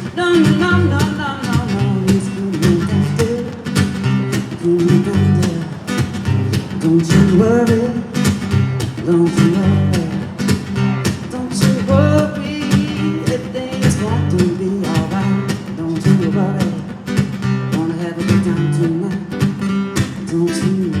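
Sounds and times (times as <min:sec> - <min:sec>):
person singing wordless melody: 0:00.0 - 0:03.7
acoustic guitar strumming: 0:00.0 - 0:21.0.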